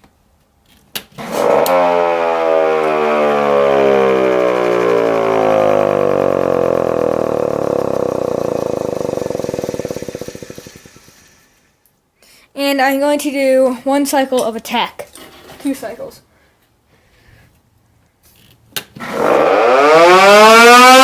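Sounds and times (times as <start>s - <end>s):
siren wailing: 1.3s - 9.8s, 19.1s - 21.0s.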